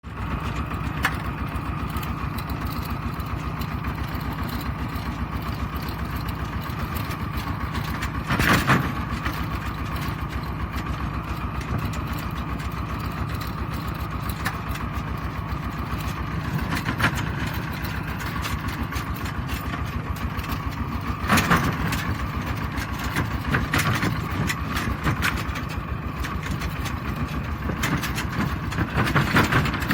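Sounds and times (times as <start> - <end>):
tractor diesel engine chugging: 0.0 - 29.9.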